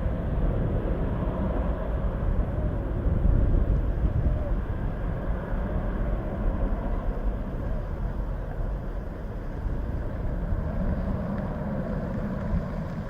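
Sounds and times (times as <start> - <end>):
jet engines rumbling: 0.0 - 13.0
wind buffeting microphone: 0.0 - 13.0.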